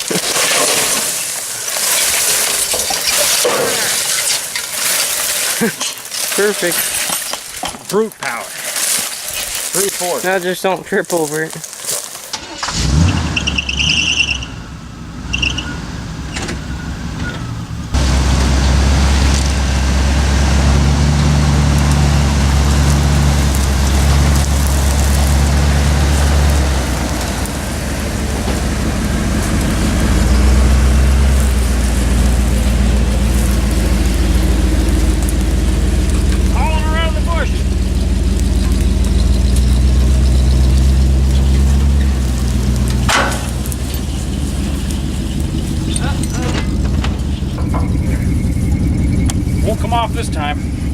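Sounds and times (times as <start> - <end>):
vehicle engine idling: 12.4 - 50.9.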